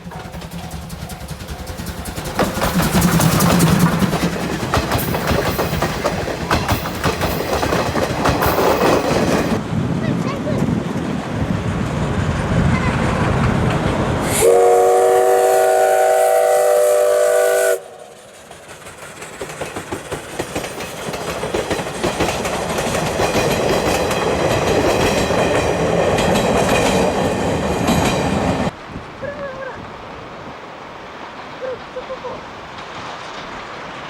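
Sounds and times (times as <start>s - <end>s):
train wheels clattering on rails: 0.0s - 16.0s, 16.7s - 28.8s
steam locomotive whistle: 14.2s - 18.2s.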